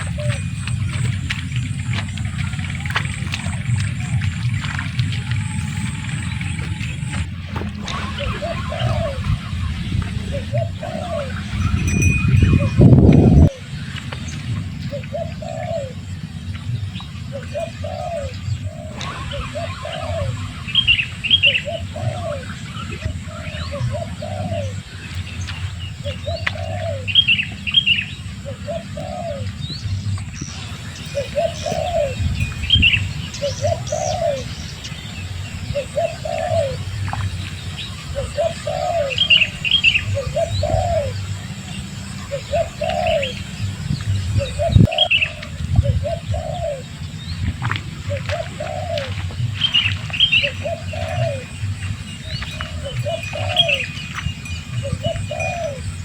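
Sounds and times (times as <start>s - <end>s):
bird cooing: 0.0s - 14.0s, 14.7s - 16.4s, 17.2s - 25.1s, 26.0s - 29.7s, 30.4s - 56.0s
low rumble: 0.0s - 56.0s
small birds chirping: 0.0s - 56.0s.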